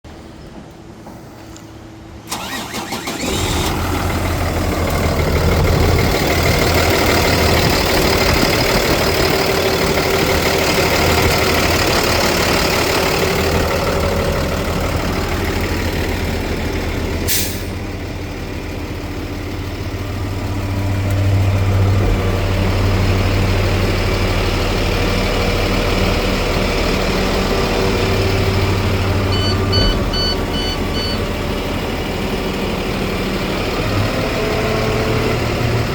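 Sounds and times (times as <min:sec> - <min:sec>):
diesel truck engine idling: 0:00.1 - 0:35.9
high beeps: 0:29.3 - 0:31.2.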